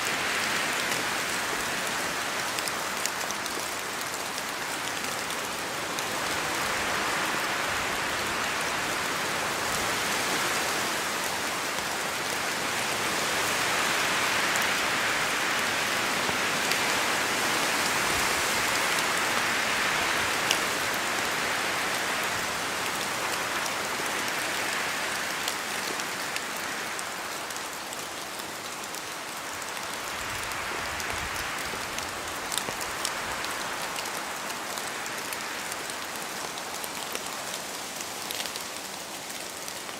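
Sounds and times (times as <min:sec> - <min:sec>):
steady rain falling: 0:00.0 - 0:39.9
wind through branches: 0:00.0 - 0:39.9
drops pattering off trees: 0:35.2 - 0:39.9.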